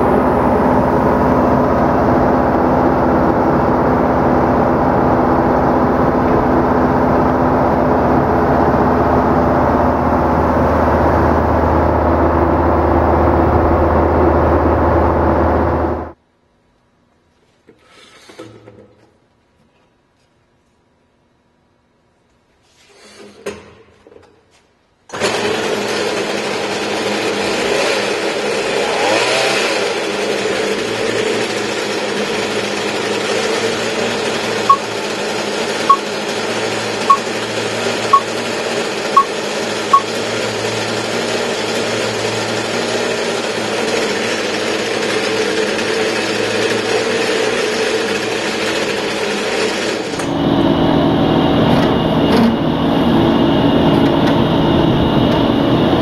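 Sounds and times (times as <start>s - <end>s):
concrete-cutting saw running: 25.2s - 50.3s.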